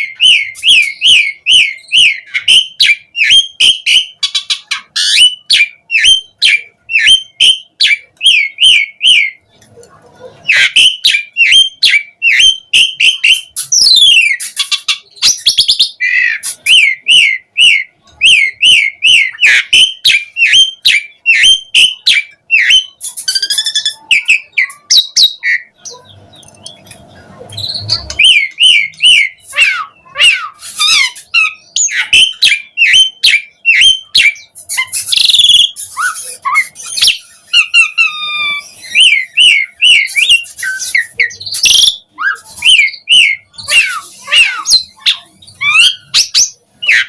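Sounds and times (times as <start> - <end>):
bird singing whistled notes: 27.6 - 47.0.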